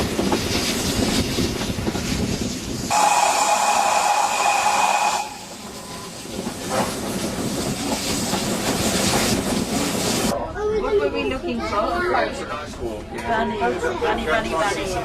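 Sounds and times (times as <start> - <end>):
train running on rails: 0.0 - 10.4
steam locomotive whistle: 2.9 - 6.1.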